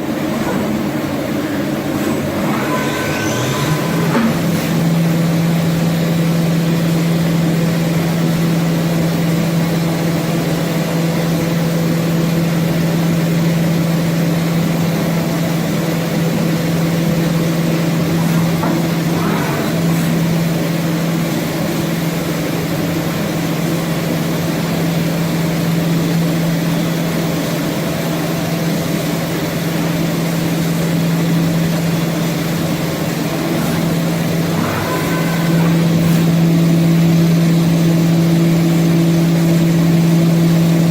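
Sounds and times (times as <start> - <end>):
machine hum: 0.0 - 40.9.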